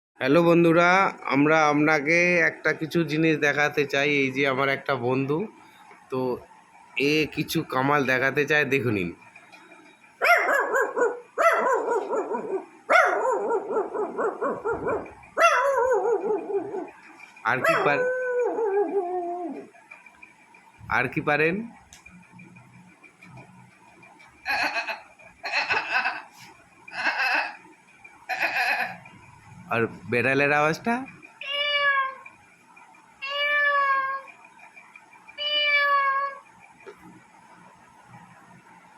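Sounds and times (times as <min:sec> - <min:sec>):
man imitating dog howling: 0:17.6 - 0:19.7.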